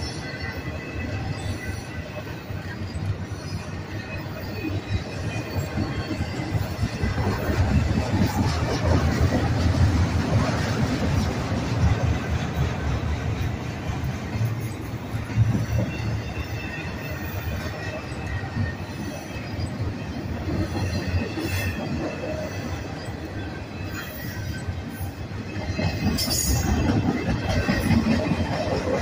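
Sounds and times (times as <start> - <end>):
steel wheels rumbling on rail: 0.0 - 29.0
wheel squeal: 14.4 - 29.0.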